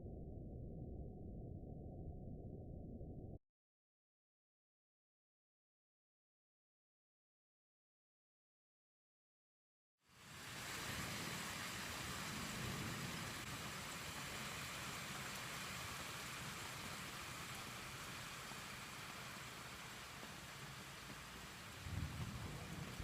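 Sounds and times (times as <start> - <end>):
rain hissing: 10.1 - 23.0
distant thunder rumble: 10.8 - 14.4, 21.0 - 23.0.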